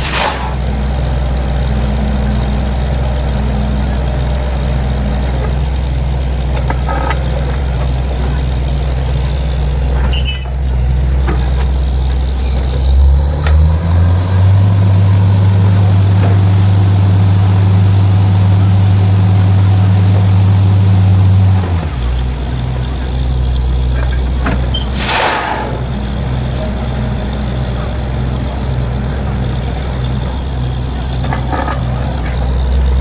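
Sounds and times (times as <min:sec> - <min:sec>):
short hisses and clicks: 0:00.0 - 0:00.6, 0:24.9 - 0:25.8
heavy diesel engine running: 0:00.0 - 0:33.0.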